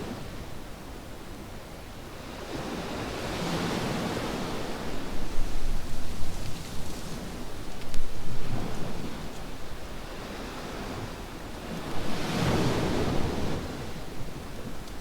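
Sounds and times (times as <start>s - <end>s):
surf on a beach: 8.3s - 15.0s.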